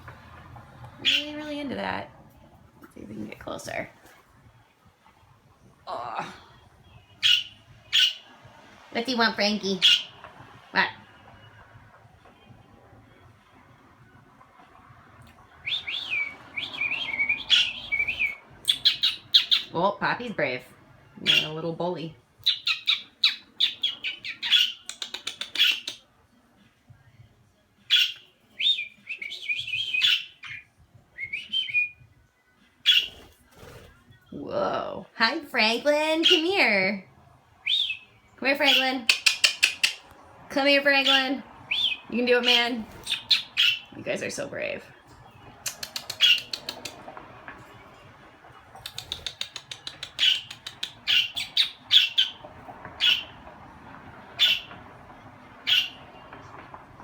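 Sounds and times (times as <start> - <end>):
budgerigars chirping: 1.0 - 1.5, 7.2 - 8.3, 9.8 - 10.2, 15.6 - 19.8, 21.2 - 21.6, 22.5 - 26.0, 30.0 - 30.6, 32.8 - 33.2, 36.2 - 36.7, 37.6 - 40.1, 41.0 - 44.0, 45.8 - 47.0, 48.9 - 52.4, 53.0 - 53.4, 54.3 - 54.8, 55.6 - 56.1.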